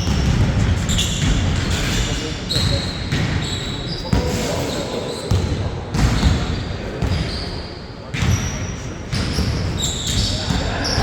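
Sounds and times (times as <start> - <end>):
basketball bouncing: 0.0 - 1.9
sneakers squeaking on floor: 0.0 - 11.0
players' voices: 1.5 - 11.0.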